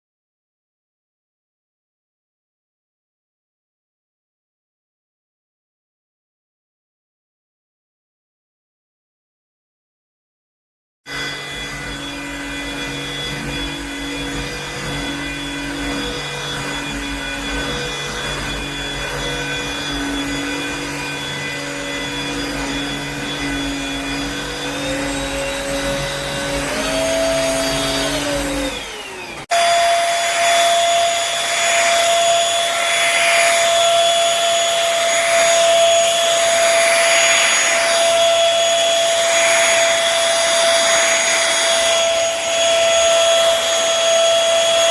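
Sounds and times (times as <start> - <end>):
stick vacuum motor whine: 11.1 - 44.9.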